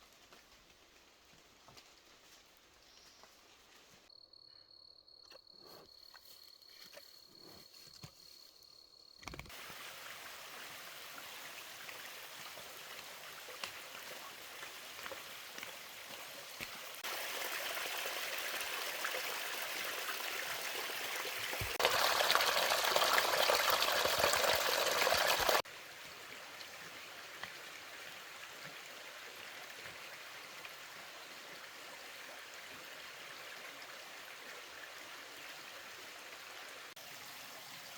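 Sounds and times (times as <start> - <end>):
rushing water: 9.5 - 37.9.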